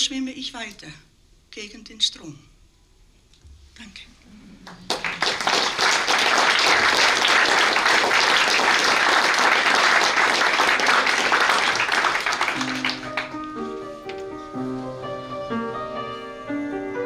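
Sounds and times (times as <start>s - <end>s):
audience applauding: 4.6s - 13.4s.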